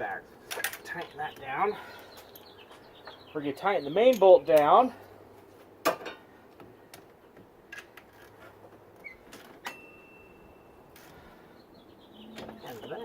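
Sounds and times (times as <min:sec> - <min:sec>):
thin high tone ringing: 0:09.6 - 0:11.2.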